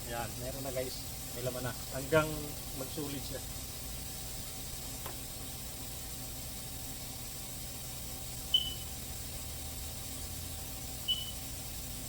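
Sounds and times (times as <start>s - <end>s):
short high chirp: 8.5s - 8.9s.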